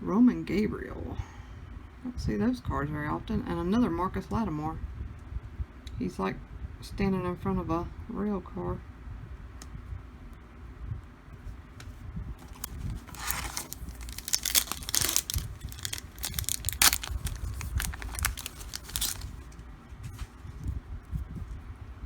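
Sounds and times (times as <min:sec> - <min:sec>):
wrapper being torn and crinkled: 0:12.4 - 0:19.6.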